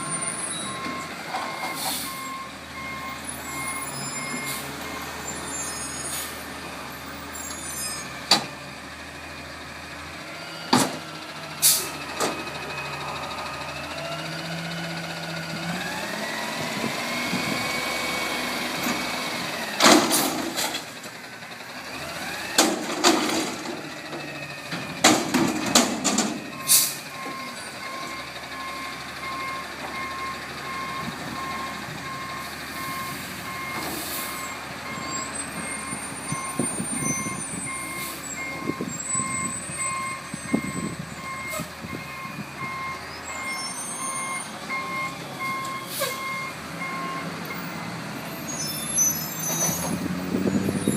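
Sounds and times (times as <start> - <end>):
reversing beeper: 0.0 - 6.2, 26.4 - 49.7.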